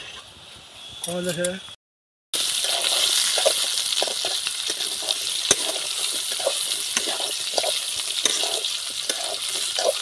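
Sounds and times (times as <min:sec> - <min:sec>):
potatoes sizzling in hot oil: 0:02.4 - 0:10.0
spatula scraping and knocking pan: 0:02.6 - 0:10.0.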